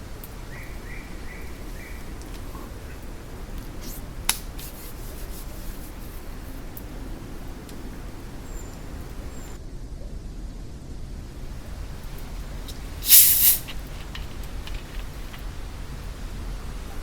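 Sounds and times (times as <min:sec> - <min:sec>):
low rumbling background noise: 0:00.0 - 0:17.0
sharp crack: 0:03.8 - 0:04.7, 0:12.2 - 0:15.4.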